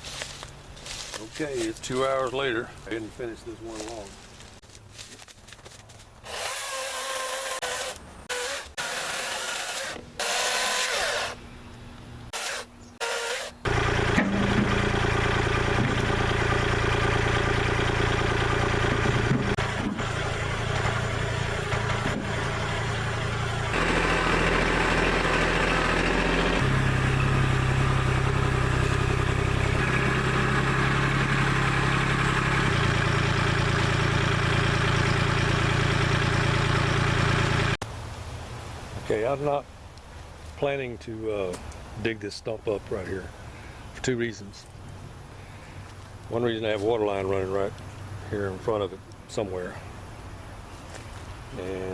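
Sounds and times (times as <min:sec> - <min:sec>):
battery chainsaw whining: 0:06.2 - 0:11.4, 0:12.3 - 0:37.7
tractor diesel engine running: 0:12.3 - 0:37.8.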